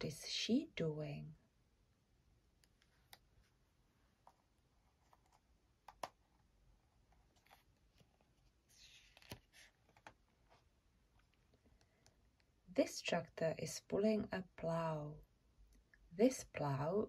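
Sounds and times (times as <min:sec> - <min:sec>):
soft hiss: 0:07.3 - 0:12.5.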